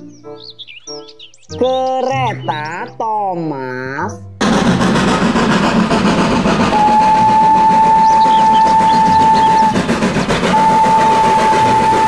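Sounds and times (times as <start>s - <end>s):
steam locomotive running: 4.4s - 12.0s
steam whistle blasts: 6.3s - 12.0s.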